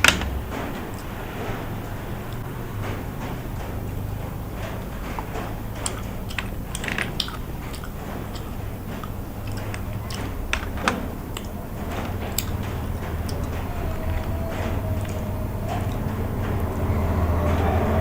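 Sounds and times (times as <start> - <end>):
low hum: 0.0 - 18.0
chewing and biting: 4.6 - 17.6.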